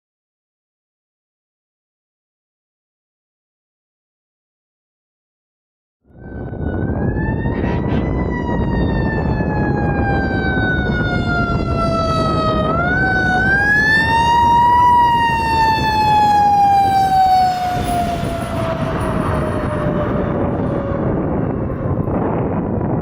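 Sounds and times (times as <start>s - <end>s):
fire truck siren wailing: 6.1s - 23.0s
passing truck rumble: 6.2s - 23.0s.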